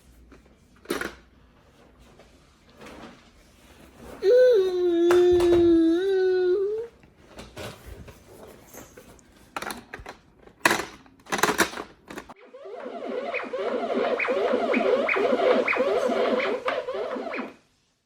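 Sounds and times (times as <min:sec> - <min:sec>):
toddler whining cry: 0:04.2 - 0:06.9
toy electronic music: 0:12.4 - 0:17.6.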